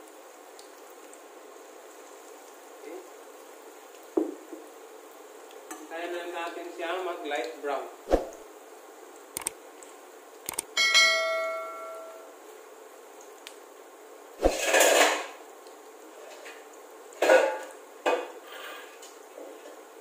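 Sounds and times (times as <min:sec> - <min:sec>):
ringing metal strike: 0:10.8 - 0:12.3
noisy scraping: 0:14.4 - 0:15.2.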